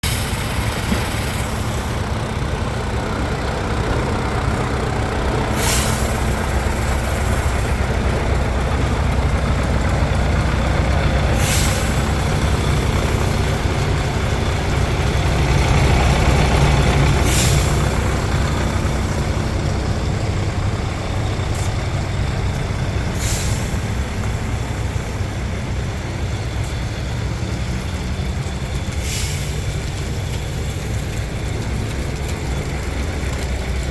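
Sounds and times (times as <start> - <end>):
truck diesel engine running: 0.0 - 33.9
air hiss: 5.5 - 7.8, 11.3 - 13.7, 17.2 - 19.2, 23.1 - 25.5, 29.0 - 30.1.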